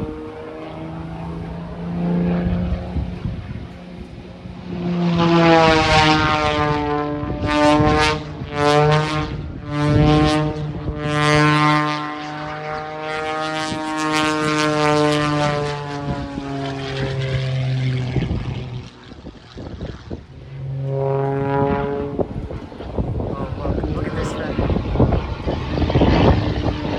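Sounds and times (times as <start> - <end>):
propeller airplane engine droning: 0.0 - 26.9.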